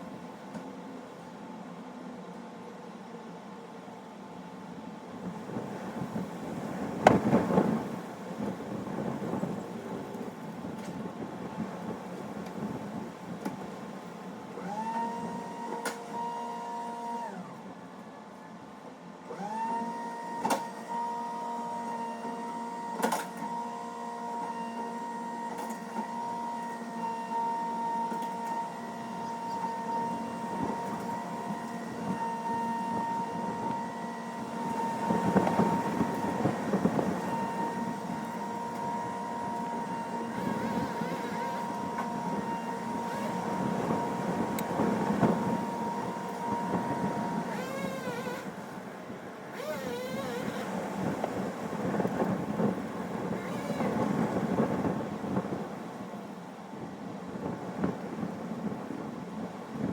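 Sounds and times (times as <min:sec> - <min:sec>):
small engine revving: 0:40.3 - 0:44.7, 0:45.3 - 0:48.6, 0:49.5 - 0:50.8, 0:53.4 - 0:54.0.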